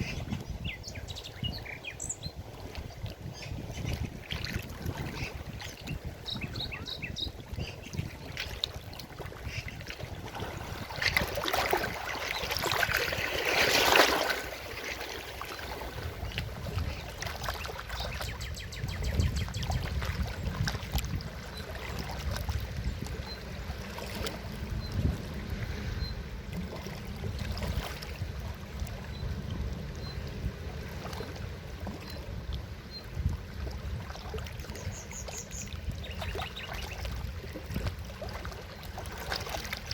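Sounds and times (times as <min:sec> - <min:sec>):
river water rushing: 0:10.2 - 0:16.0.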